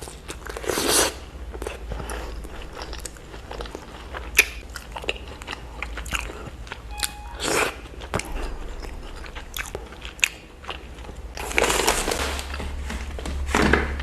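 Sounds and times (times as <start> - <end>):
wet mouth clicks and chewing: 0.0 - 6.9.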